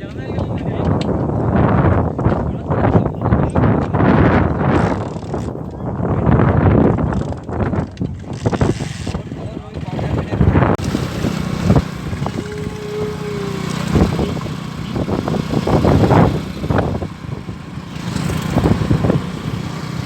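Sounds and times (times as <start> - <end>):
motor engine humming: 9.4 - 20.0.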